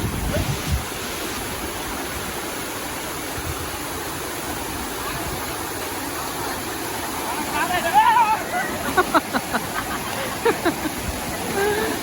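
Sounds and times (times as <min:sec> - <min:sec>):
wind buffeting microphone: 0:00.0 - 0:02.1
waterfall rushing: 0:00.0 - 0:12.0.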